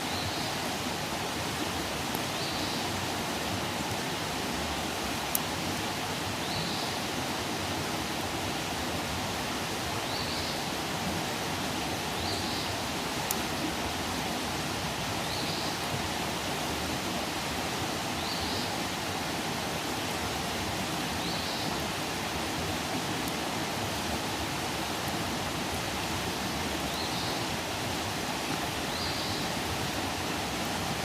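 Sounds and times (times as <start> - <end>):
campfire crackling: 0.9 - 6.0, 10.8 - 15.0, 19.0 - 28.9.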